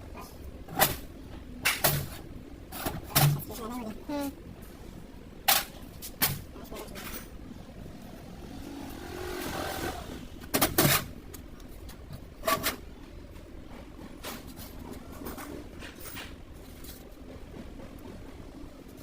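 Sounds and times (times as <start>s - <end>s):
sharp knocks and clanks: 0.7s - 3.6s
swelling noise: 7.5s - 10.4s.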